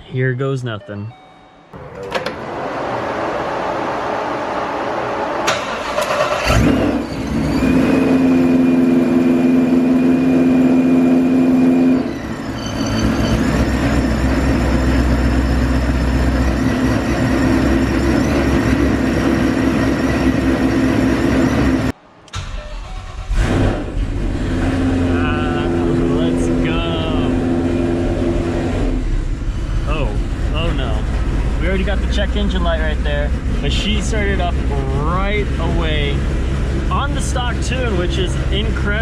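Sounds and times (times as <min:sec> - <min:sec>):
engine fast idle with whine: 0:05.4 - 0:21.9
car engine cranking and starting: 0:05.4 - 0:39.0.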